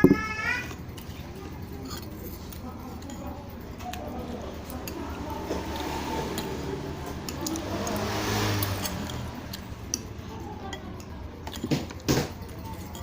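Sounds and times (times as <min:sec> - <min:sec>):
spoon scraping a bowl: 0:00.0 - 0:10.1.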